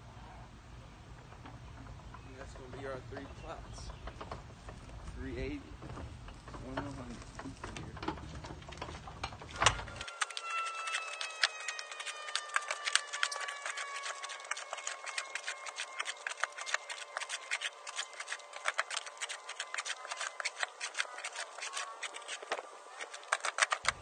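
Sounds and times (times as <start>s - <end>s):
shovel scraping compost: 6.6s - 24.0s.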